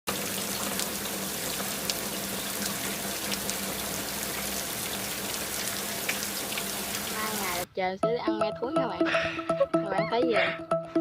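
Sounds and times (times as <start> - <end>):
rain falling: 0.1 - 7.6.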